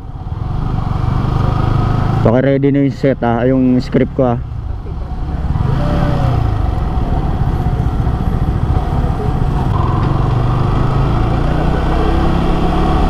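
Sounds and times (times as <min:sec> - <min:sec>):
motorcycle engine running: 0:04.4 - 0:13.0.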